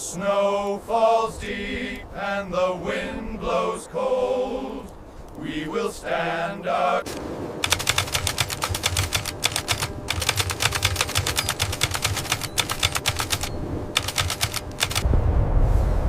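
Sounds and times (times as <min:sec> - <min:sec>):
low battlefield rumble: 0:00.0 - 0:16.0
automatic gunfire bursts: 0:07.6 - 0:15.0.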